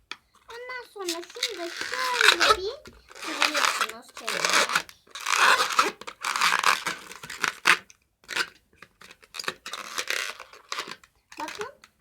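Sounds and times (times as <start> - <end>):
balloon rubbing while twisted: 0.5 - 8.5, 9.2 - 11.8.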